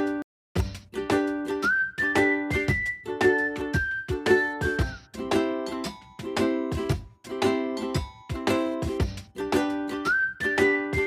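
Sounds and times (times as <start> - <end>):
strummed chords music: 0.0 - 11.0
whistled melody: 1.3 - 6.8, 9.6 - 11.0.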